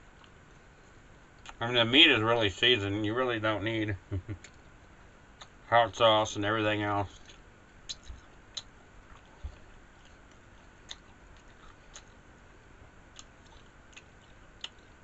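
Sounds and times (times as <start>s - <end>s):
wet mouth chewing clicks: 7.2s - 12.2s.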